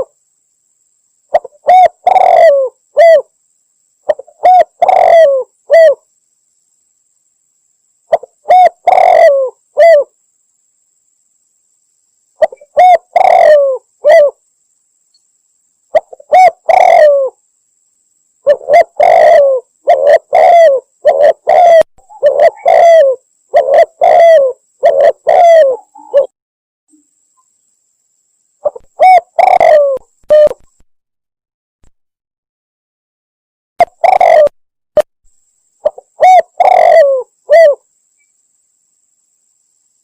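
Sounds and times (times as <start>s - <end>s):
dove cooing: 1.3s - 3.3s, 4.1s - 6.0s, 8.1s - 10.1s, 12.4s - 14.4s, 15.9s - 17.4s, 18.4s - 26.3s, 28.6s - 30.7s, 33.8s - 34.6s, 35.8s - 37.8s.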